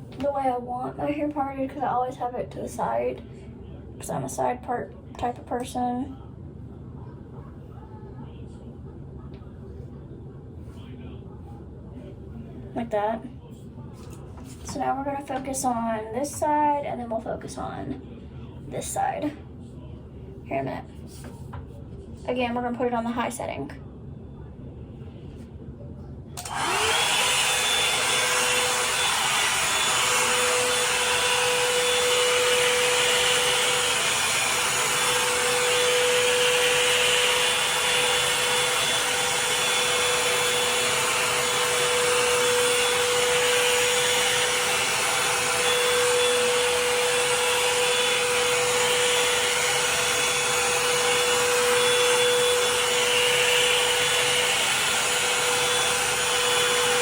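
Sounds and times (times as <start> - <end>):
hair dryer motor whine: 26.4 - 57.0.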